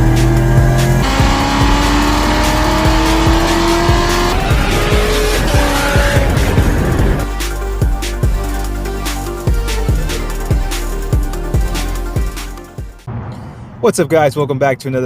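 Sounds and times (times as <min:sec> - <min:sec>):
car engine accelerating: 0:00.0 - 0:07.3
background music: 0:00.0 - 0:13.6.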